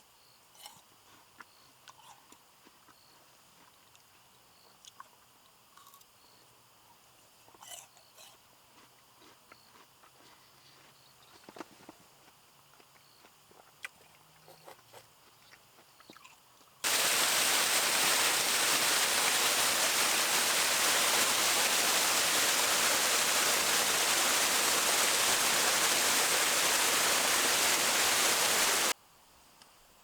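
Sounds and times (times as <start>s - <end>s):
loud steady rushing hiss: 16.8s - 30.0s.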